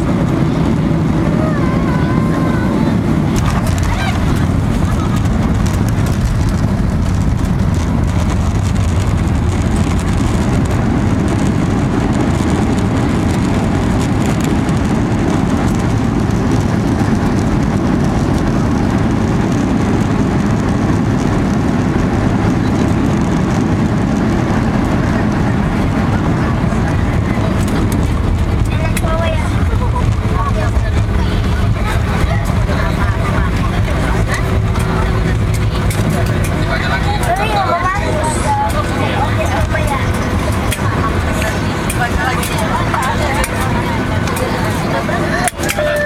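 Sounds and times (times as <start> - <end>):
jet engines rumbling in cabin: 0.0 - 46.0.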